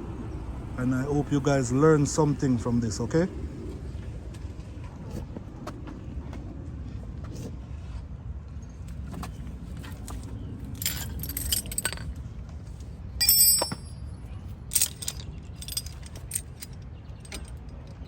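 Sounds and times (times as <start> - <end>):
low steady rumble: 0.0 - 18.0
metal tools clinking: 10.8 - 12.2, 13.2 - 18.0.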